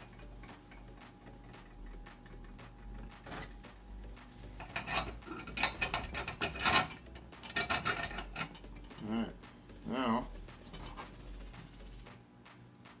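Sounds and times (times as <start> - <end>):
metal hardware clicking and clinking: 0.0 - 4.0, 4.6 - 9.2.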